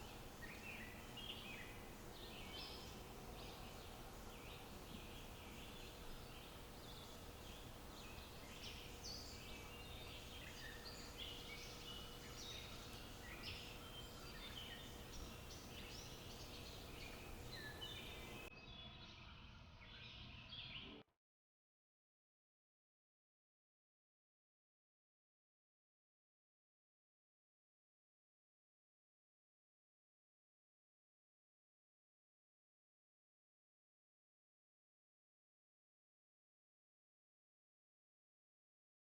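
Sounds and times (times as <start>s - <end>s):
faint steady hum: 0.0s - 18.5s
songbirds chirping: 0.0s - 21.0s.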